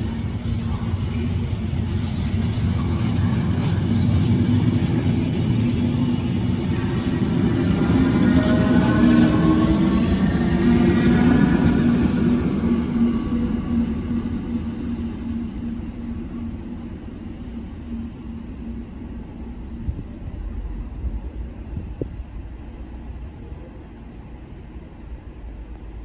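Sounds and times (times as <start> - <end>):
electric train rumble: 0.0 - 26.0.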